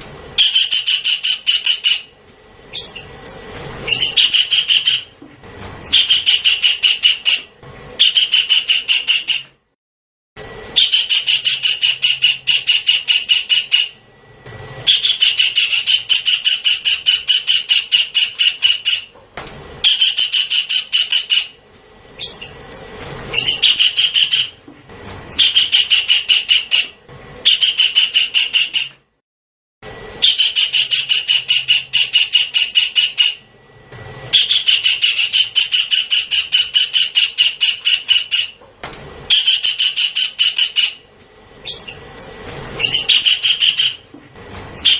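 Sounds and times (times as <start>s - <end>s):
kingfisher calling: 0.4s - 2.1s, 2.7s - 5.1s, 5.8s - 9.4s, 10.8s - 14.0s, 14.9s - 19.1s, 19.8s - 21.6s, 22.2s - 24.6s, 25.3s - 28.9s, 30.2s - 33.4s, 34.3s - 38.6s, 39.3s - 41.0s, 41.6s - 44.1s.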